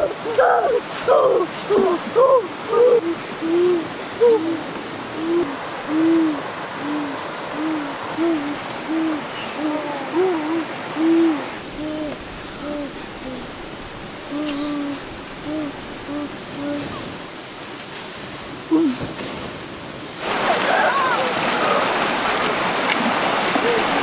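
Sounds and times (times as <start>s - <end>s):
bird hooting: 0.0s - 17.3s.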